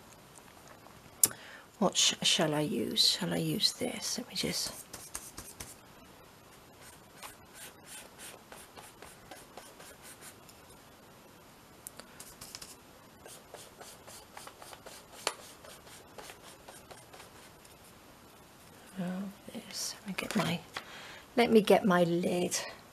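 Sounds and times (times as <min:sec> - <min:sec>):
tool rubbing on paper: 0:04.6 - 0:05.8, 0:06.8 - 0:10.4, 0:12.2 - 0:17.6.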